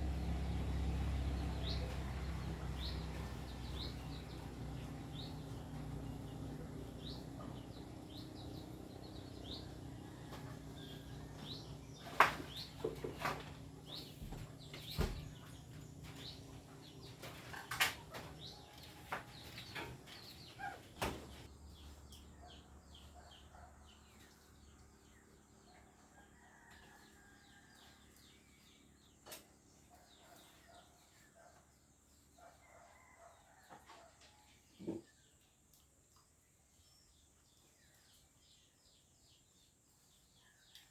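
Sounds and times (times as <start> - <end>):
low steady rumble: 0.0 - 18.9
birds chirping: 0.0 - 33.6.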